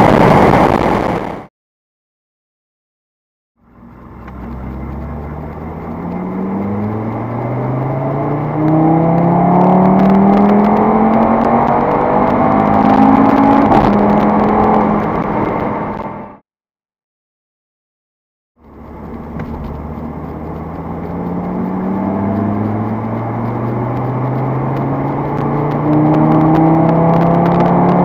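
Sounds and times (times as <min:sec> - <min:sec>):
car engine accelerating hard: 0:03.6 - 0:16.4, 0:18.6 - 0:28.0.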